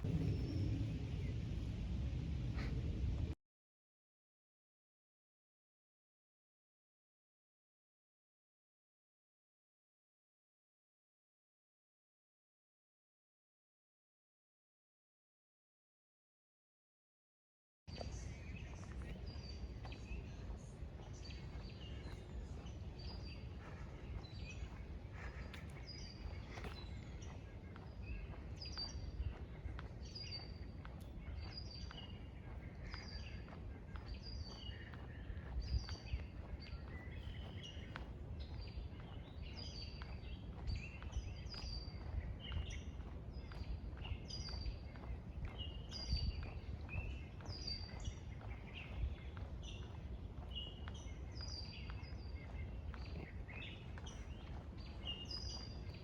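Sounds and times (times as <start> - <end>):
steady low rumble: 0.0 - 3.4, 17.9 - 56.0
birds calling: 17.9 - 56.0.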